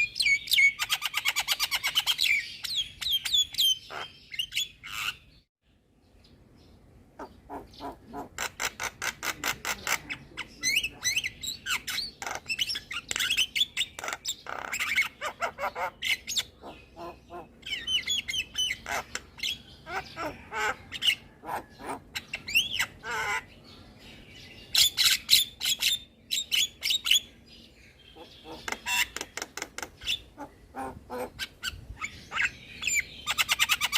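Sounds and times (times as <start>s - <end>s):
myna bird singing: 0.0s - 33.9s.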